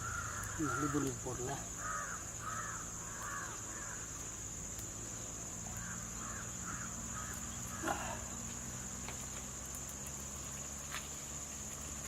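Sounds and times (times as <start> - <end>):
crows cawing: 0.0 - 4.2, 5.7 - 8.4
insects buzzing: 0.0 - 12.0.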